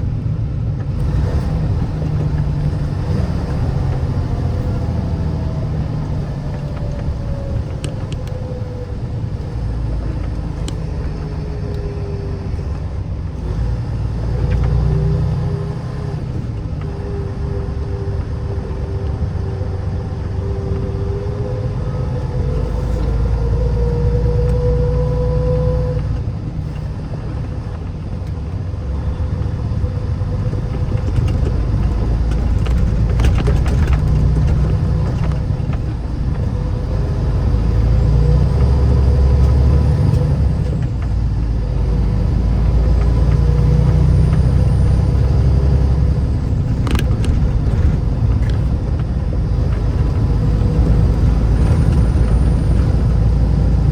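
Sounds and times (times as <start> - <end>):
car engine and tyres rumbling: 0.0 - 53.9.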